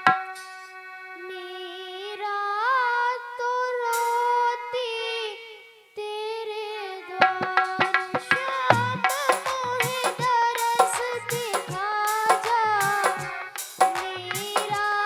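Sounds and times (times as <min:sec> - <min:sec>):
woman singing devotional song: 0:00.3 - 0:15.0
hand drum strikes: 0:07.8 - 0:14.8
sustained instrumental accompaniment: 0:08.7 - 0:14.9.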